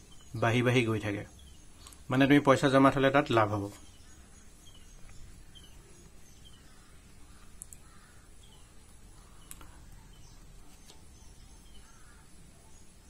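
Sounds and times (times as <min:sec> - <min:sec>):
faint bird chirps: 0:00.0 - 0:13.0
soft clicks: 0:07.4 - 0:07.9.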